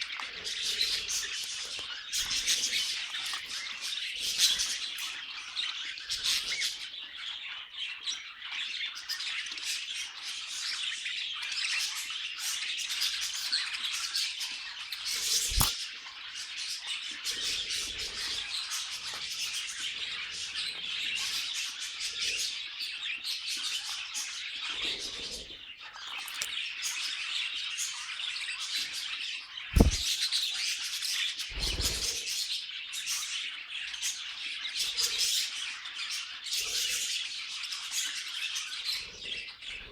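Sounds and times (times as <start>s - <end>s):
budgerigars chattering and warbling: 29.8s - 30.0s
sharp knocks: 29.8s - 30.0s
soft thumps: 29.8s - 30.0s.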